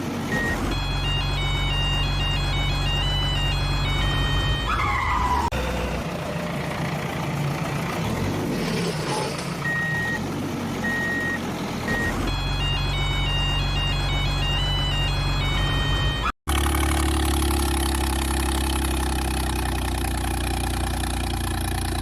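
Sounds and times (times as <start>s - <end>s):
truck engine rumble: 0.0s - 22.0s
high electronic tune: 0.3s - 6.0s, 10.9s - 16.3s
reversing beeps: 0.3s - 6.0s, 9.6s - 10.2s, 10.8s - 16.3s.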